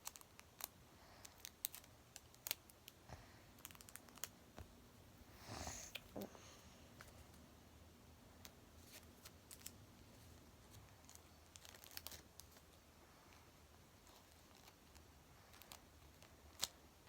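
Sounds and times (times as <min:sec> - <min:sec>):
plastic bag crinkling: 0:11.0 - 0:12.6.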